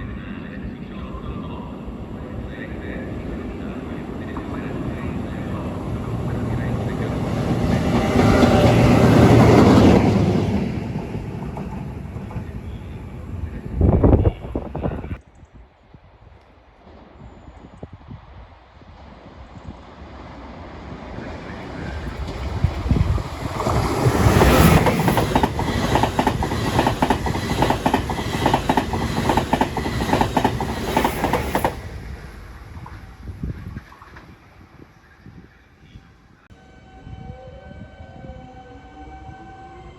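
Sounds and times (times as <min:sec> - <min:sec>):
train passing at speed: 0:00.0 - 0:14.9, 0:16.6 - 0:35.5
train wheels clacking over rails: 0:21.9 - 0:31.9.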